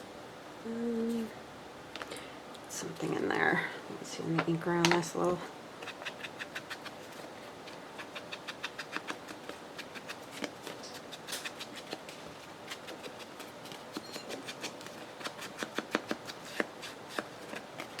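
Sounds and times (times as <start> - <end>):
ink pad tapping on paper: 15.6 - 17.6.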